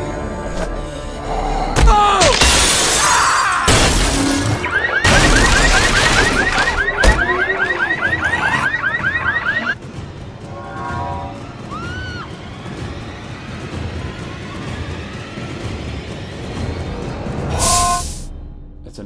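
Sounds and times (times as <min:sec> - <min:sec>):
music: 0:00.0 - 0:02.6, 0:09.7 - 0:19.0
crashing and shattering effects: 0:01.8 - 0:08.3
electronic alarm whoop: 0:04.6 - 0:09.8, 0:10.6 - 0:12.4.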